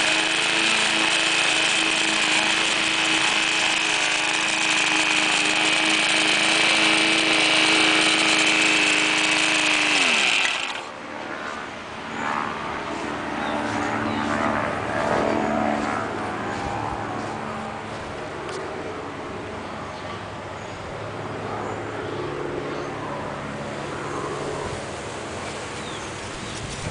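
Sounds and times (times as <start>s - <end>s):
lawn mower engine running: 0.0s - 11.2s.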